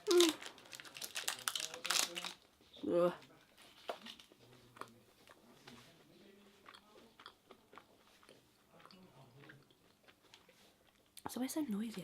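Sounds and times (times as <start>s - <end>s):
faint chewing: 3.4s - 12.0s.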